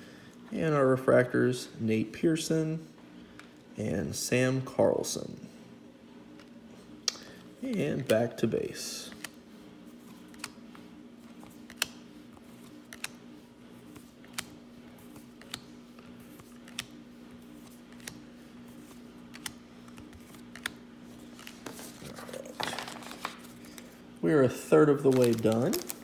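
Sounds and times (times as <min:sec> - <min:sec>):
steady low hum: 0:00.0 - 0:26.0
trading cards being flipped: 0:10.0 - 0:13.2, 0:13.8 - 0:24.0, 0:25.1 - 0:26.0
card clicking onto stack: 0:11.5 - 0:13.2, 0:13.9 - 0:14.6, 0:17.6 - 0:18.2, 0:18.8 - 0:23.8.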